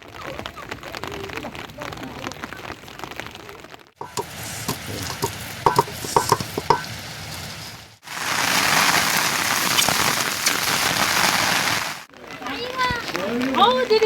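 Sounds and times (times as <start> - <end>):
steady hissing noise: 4.0 - 12.1.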